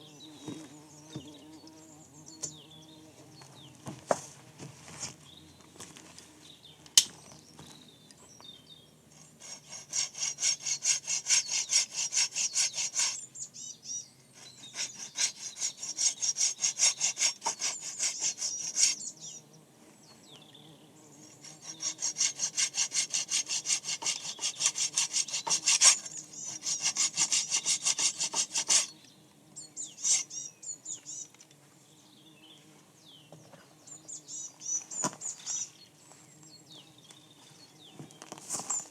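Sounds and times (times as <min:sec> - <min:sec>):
hand saw cutting wood: 0:09.2 - 0:13.2, 0:14.4 - 0:19.1, 0:21.3 - 0:29.0, 0:30.0 - 0:30.3.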